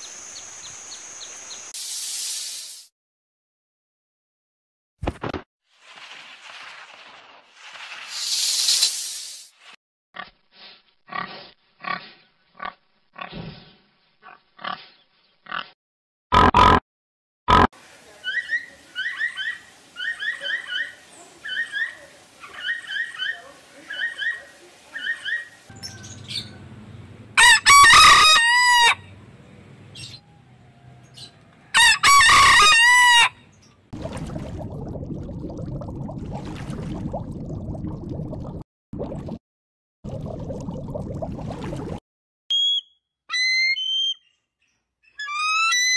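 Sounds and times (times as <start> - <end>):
rooster crowing: 25.7 - 26.8, 27.4 - 29.1, 30.2 - 33.4.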